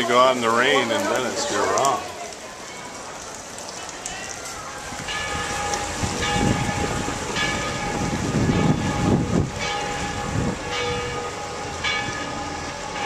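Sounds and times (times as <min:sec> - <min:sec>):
low rumbling noise: 0:04.9 - 0:13.0
church bells ringing: 0:05.1 - 0:13.0.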